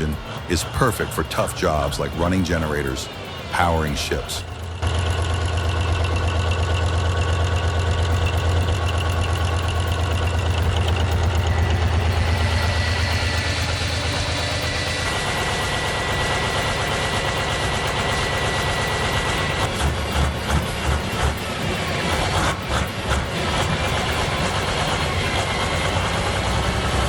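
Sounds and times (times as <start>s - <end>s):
thin high whine: 8.1s - 27.0s.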